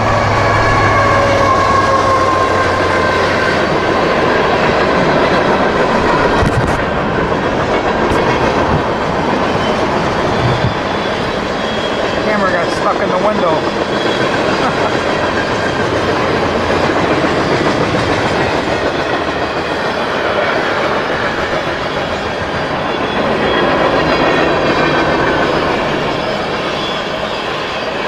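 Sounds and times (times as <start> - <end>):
freight train rumbling past: 0.0 - 28.0.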